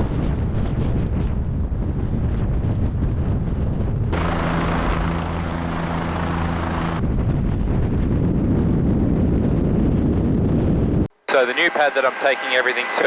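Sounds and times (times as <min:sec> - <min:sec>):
helicopter rotor and engine: 0:04.1 - 0:07.9.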